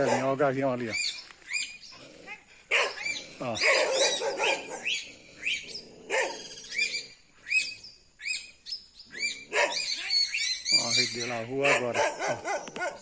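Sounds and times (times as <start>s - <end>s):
flock of birds alarm calling: 9.1s - 13.0s.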